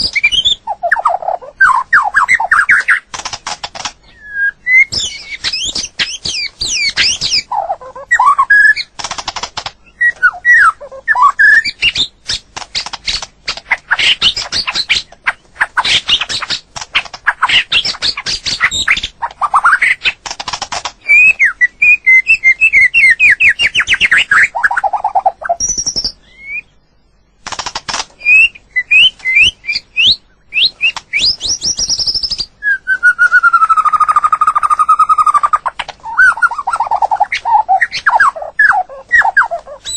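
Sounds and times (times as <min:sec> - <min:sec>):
songbird singing whistles: 0:00.0 - 0:03.0, 0:04.0 - 0:08.9, 0:09.8 - 0:13.2, 0:21.0 - 0:26.8, 0:28.2 - 0:39.9.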